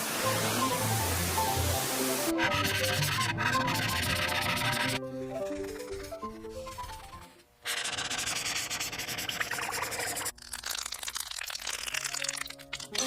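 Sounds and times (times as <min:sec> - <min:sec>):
background music: 0:00.0 - 0:07.4, 0:12.0 - 0:13.0
sanding rasp: 0:02.3 - 0:10.3.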